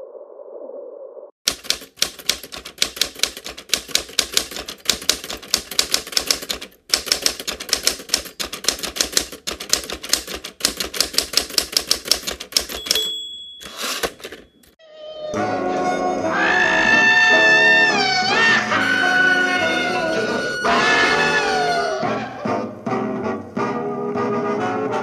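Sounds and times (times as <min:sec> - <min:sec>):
manual typewriter typing: 0:01.5 - 0:14.8
typewriter bell ringing: 0:12.2 - 0:14.7.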